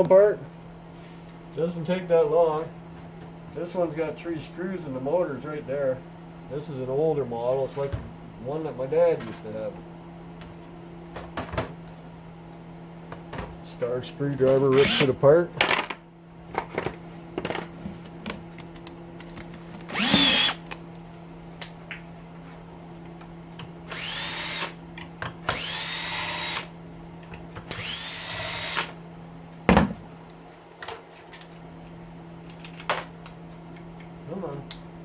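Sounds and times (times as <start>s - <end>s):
parts clicking and clattering: 14.5s - 20.8s, 32.5s - 34.1s
power drill whining: 14.7s - 15.1s, 19.8s - 20.7s, 23.9s - 24.8s, 25.5s - 26.7s, 27.7s - 29.0s.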